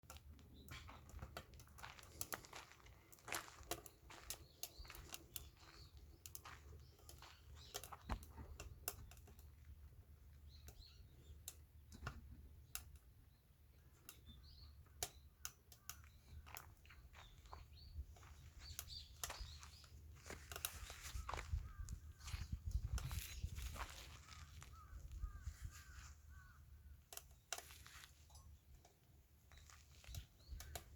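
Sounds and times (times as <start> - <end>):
light clicks and taps: 0.1 - 13.1, 14.9 - 22.0
faint bird chirps: 4.0 - 9.4, 10.3 - 28.6.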